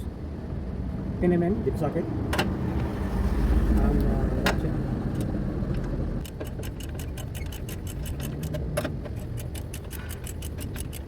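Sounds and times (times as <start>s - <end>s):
ratchet clicking: 6.2s - 11.0s.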